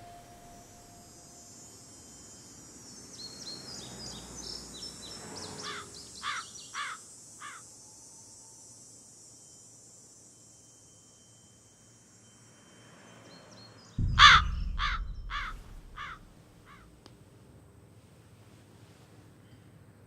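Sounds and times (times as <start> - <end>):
steady background hiss: 0.0 - 4.6, 6.0 - 12.8.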